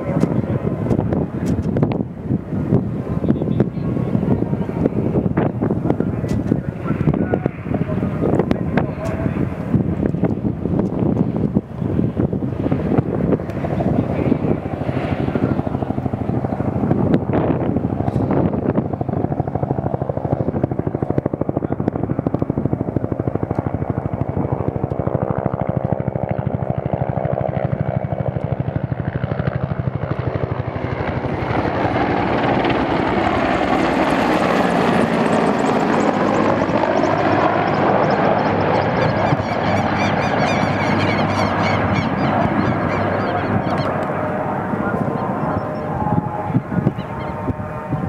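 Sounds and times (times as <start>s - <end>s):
helicopter rotor beating: 0.0s - 48.0s
high engine whine: 30.9s - 48.0s.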